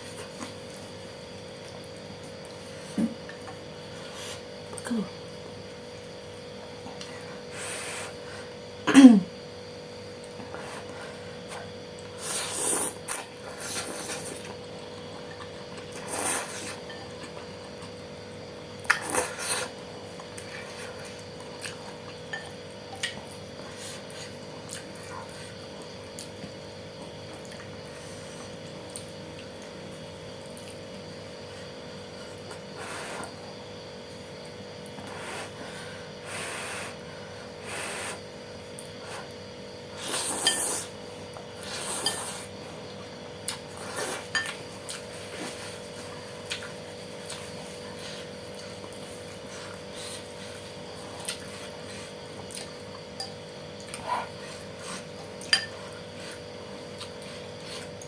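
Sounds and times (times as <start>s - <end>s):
steady hum: 0.0s - 58.0s
slurping noodles: 12.2s - 14.5s.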